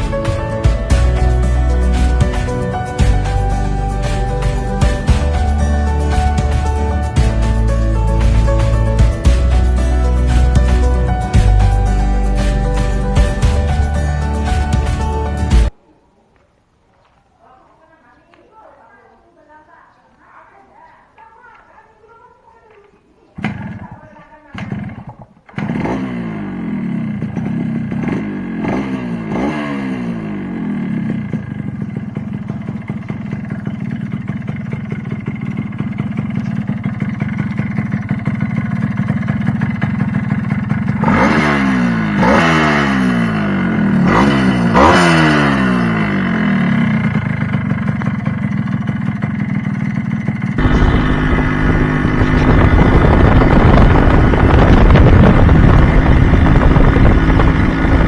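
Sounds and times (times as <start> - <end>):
two-stroke motorcycle engine revving: 24.5 - 58.0.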